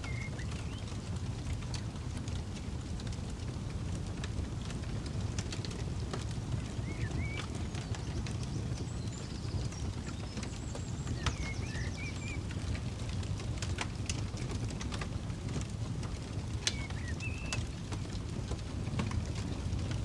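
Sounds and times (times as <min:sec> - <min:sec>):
bird chirping: 0:00.0 - 0:00.8, 0:06.8 - 0:08.2, 0:09.0 - 0:12.4, 0:16.7 - 0:17.6
campfire crackling and popping: 0:00.0 - 0:20.0.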